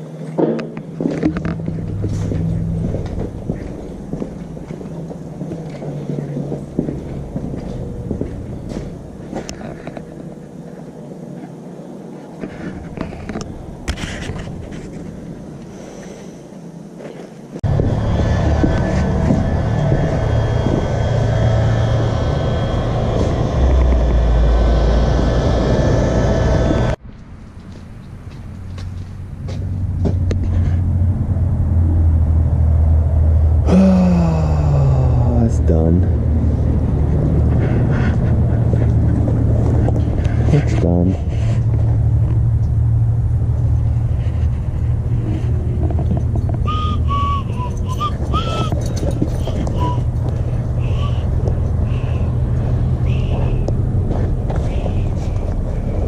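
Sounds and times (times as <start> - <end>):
machine motor rumbling: 0.4 - 11.5, 17.6 - 27.2, 29.7 - 56.0
motor whine: 17.6 - 27.0
dog whining: 46.6 - 52.4.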